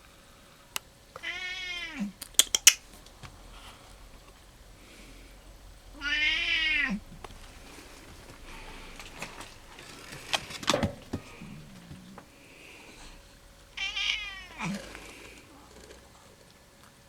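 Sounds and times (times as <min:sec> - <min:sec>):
cat meowing: 0:01.2 - 0:02.5, 0:06.0 - 0:07.0, 0:13.8 - 0:15.0
sharp clicks and knocks: 0:10.2 - 0:12.3.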